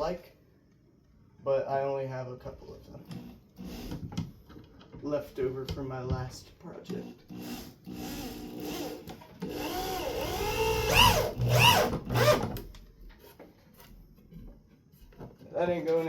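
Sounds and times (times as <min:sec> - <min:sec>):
power drill driving screw: 0:03.0 - 0:04.2, 0:06.9 - 0:12.7.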